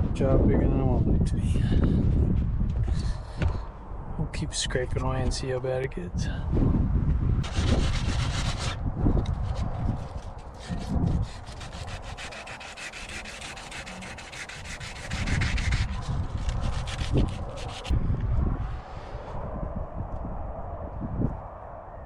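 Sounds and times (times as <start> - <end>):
scraping rust off sheet metal: 7.4 - 17.9.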